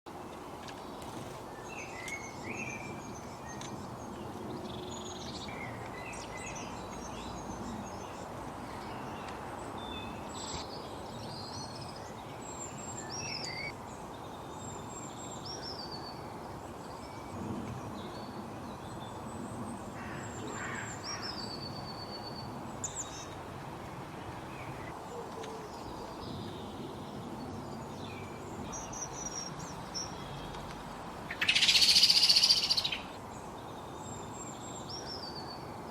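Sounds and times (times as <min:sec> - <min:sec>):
steady background hiss: 0:00.2 - 0:35.9
small birds chirping and whistling: 0:31.3 - 0:33.2.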